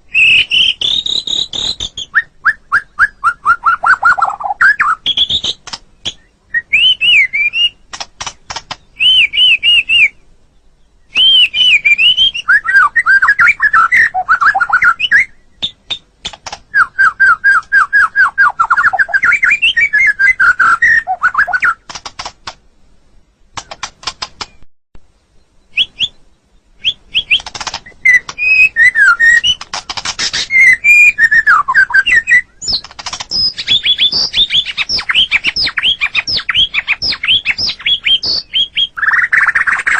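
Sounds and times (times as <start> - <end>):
bird singing whistled phrases: 0.1 - 7.8, 8.9 - 10.2, 11.0 - 16.0, 16.7 - 21.8, 25.6 - 39.9
bird rapid dry clicks: 5.1 - 6.2, 7.0 - 9.2, 14.4 - 16.8, 20.5 - 22.6, 23.5 - 24.6, 27.1 - 30.6, 32.0 - 39.9.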